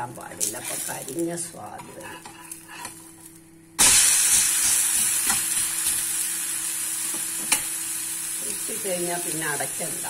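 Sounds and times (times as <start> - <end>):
pancake sizzling on hot griddle: 3.8 - 10.0.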